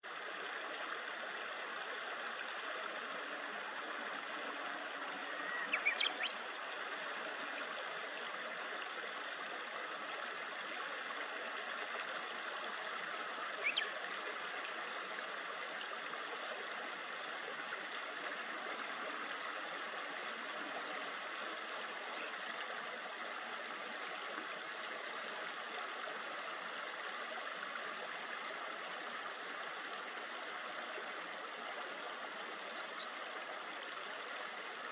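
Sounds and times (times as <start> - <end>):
river murmuring over shallows: 0.0 - 34.9
small birds chirping: 5.3 - 6.4, 32.4 - 33.2.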